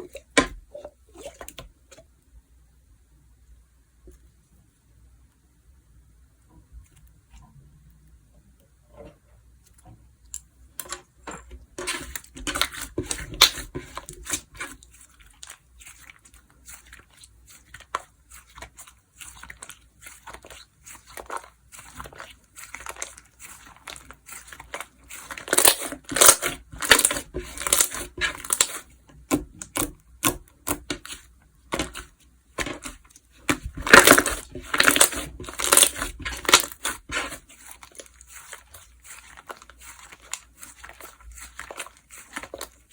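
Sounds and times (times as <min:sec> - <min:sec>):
slime squished by hand: 0:11.9 - 0:42.9.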